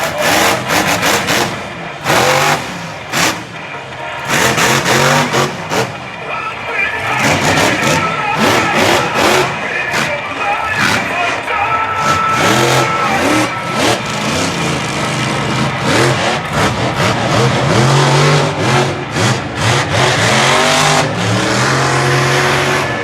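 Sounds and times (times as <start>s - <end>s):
truck engine revving hard: 0.0s - 23.0s.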